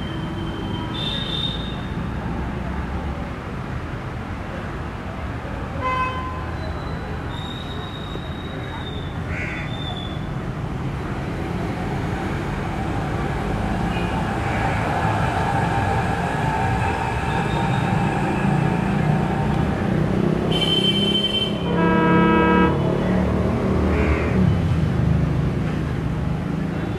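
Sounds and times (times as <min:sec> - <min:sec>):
train rumbling on rails: 0:09.8 - 0:26.9
locomotive horn: 0:20.5 - 0:23.0.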